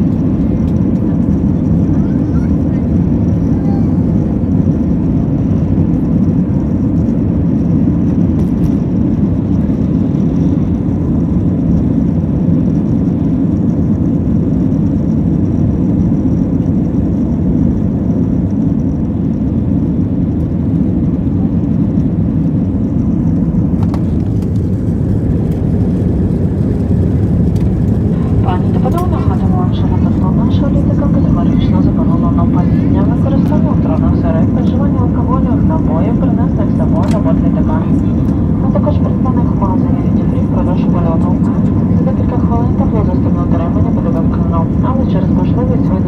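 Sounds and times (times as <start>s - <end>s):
airplane cabin engine rumble: 0.0s - 46.0s.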